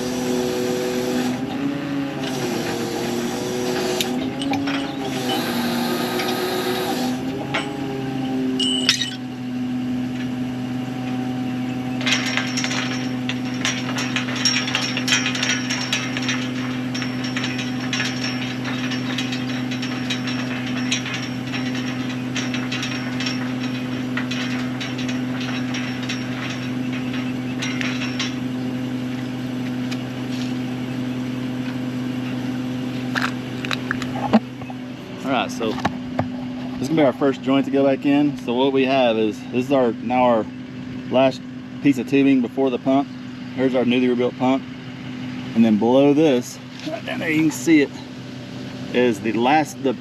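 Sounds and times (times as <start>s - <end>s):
engine idling: 0.0s - 50.0s
metal clicking and ratcheting: 12.0s - 29.3s.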